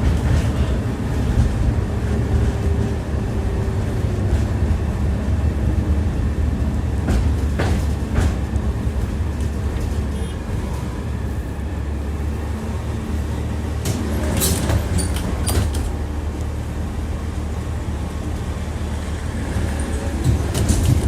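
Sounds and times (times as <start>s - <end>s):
tram wheels rumbling: 0.0s - 21.0s
wheel clacks over rail joints: 7.0s - 10.8s, 13.7s - 16.0s, 19.5s - 21.0s.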